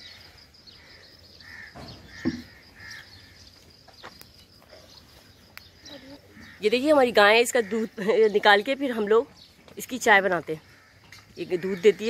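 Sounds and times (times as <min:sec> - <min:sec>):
thump: 0:01.7 - 0:02.6.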